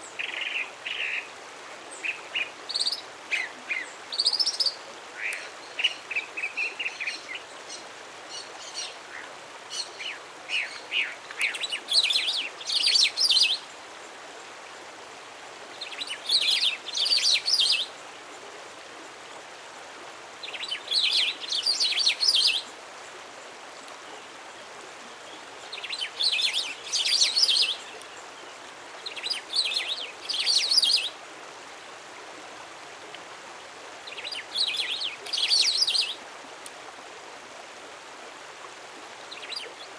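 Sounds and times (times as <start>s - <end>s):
songbird singing: 0.0s - 13.8s, 15.7s - 18.1s, 20.4s - 22.8s, 25.0s - 31.2s, 34.0s - 36.2s, 39.2s - 39.9s
faint steady hiss: 0.0s - 39.9s.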